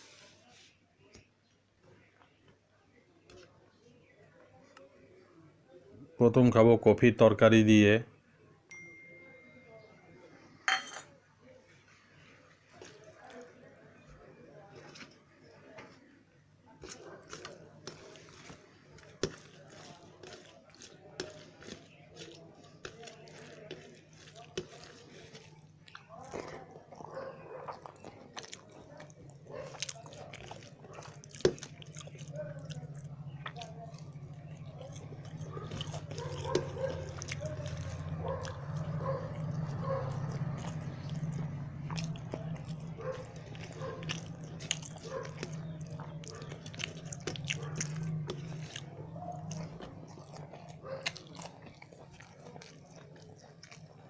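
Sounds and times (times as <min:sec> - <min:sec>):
person chewing food: 0:12.5 - 0:13.8, 0:16.7 - 0:54.0.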